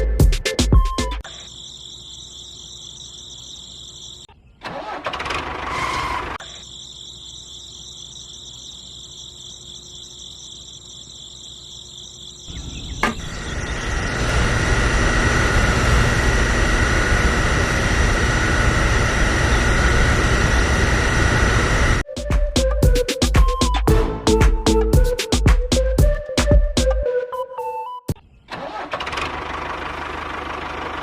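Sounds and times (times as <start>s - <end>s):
music with a beat: 0.0s - 1.2s, 22.0s - 28.2s
small motor whining: 12.6s - 22.0s.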